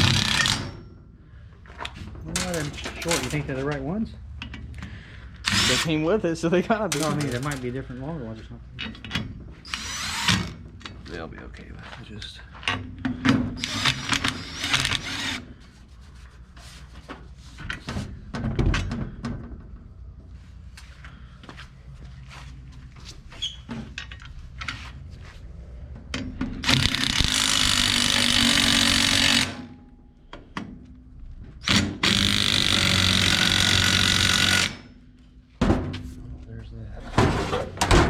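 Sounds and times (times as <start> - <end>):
power drill running: 0.0 - 0.6, 5.5 - 6.0, 9.7 - 10.6, 13.6 - 15.5, 26.6 - 29.7, 31.6 - 34.9.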